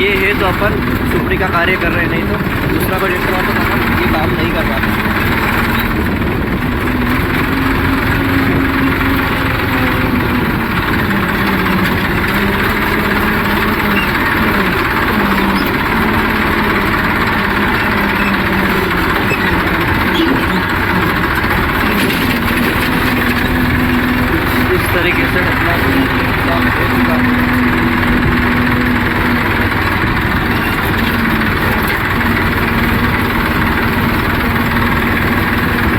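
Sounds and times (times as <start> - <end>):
diesel tractor engine under load: 0.0 - 35.9.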